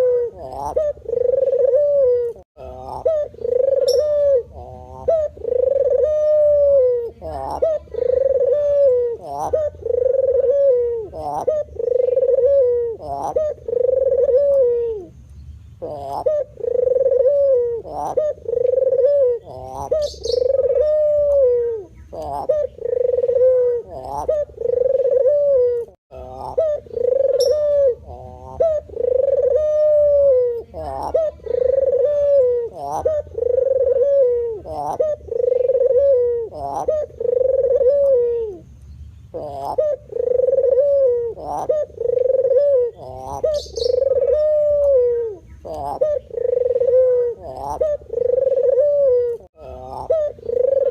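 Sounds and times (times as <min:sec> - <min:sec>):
dove cooing: 0:00.0 - 0:15.2, 0:15.8 - 0:50.9
faint high chirp: 0:03.8 - 0:04.2, 0:27.3 - 0:27.8.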